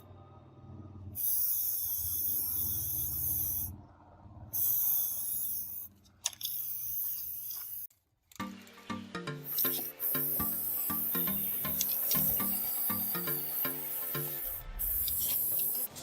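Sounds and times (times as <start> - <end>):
loud hiss bursts: 9.4 - 16.0.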